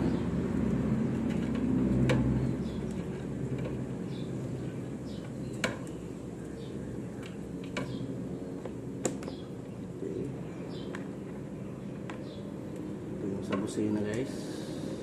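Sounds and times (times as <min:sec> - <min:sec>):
low background hum: 0:00.0 - 0:15.0
small bird chirping: 0:04.1 - 0:08.6, 0:09.2 - 0:12.6.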